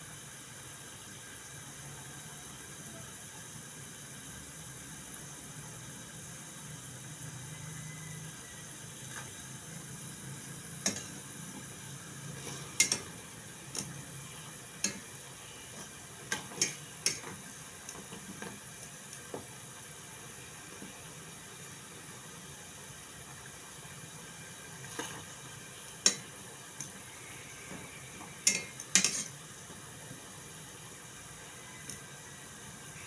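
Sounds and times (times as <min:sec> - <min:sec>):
steady hiss: 0:00.0 - 0:33.0
sharp clinks of utensils: 0:28.4 - 0:29.3.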